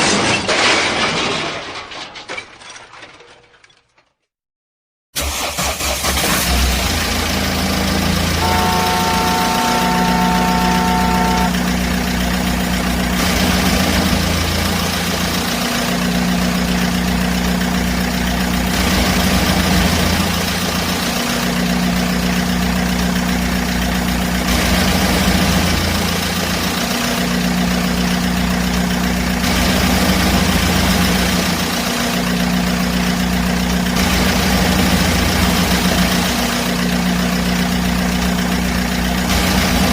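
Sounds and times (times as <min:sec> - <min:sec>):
vehicle engine idling: 0:07.0 - 0:39.9
held higher tone: 0:08.4 - 0:11.8.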